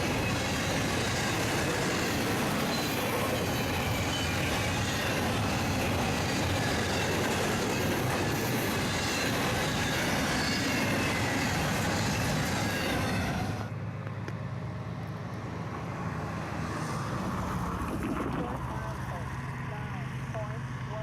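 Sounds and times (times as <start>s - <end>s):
freight train cars rolling: 0.0s - 13.8s.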